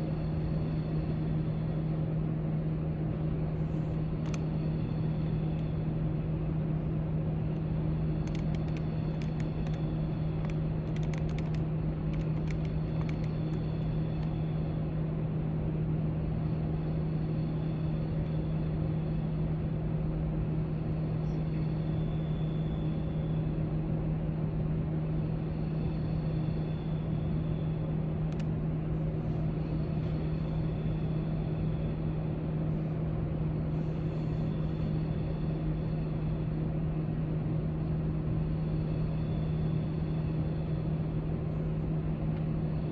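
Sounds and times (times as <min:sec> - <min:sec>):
low droning ventilation hum: 0:00.0 - 0:42.9
faint clicks and taps: 0:08.2 - 0:09.8, 0:10.4 - 0:14.4.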